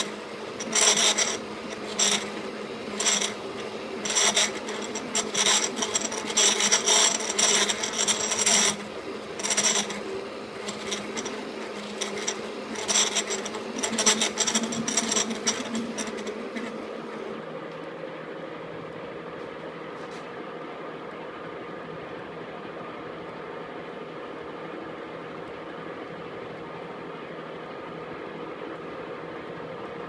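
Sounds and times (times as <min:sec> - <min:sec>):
cutting tool scraping metal: 0:00.0 - 0:16.9
lathe humming: 0:00.0 - 0:17.5.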